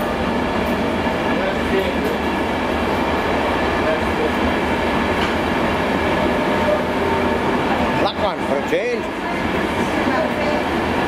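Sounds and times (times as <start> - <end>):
passenger train running: 0.0 - 11.0.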